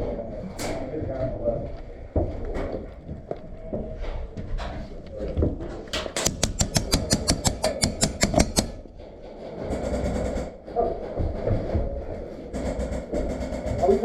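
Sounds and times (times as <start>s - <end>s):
airsoft gun firing rapid shots: 6.2s - 8.8s, 12.5s - 14.0s.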